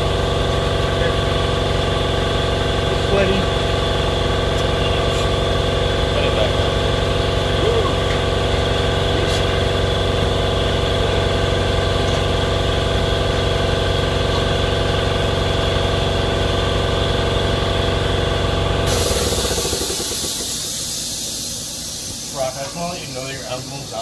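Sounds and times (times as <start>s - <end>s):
machine motor humming: 18.9s - 24.0s.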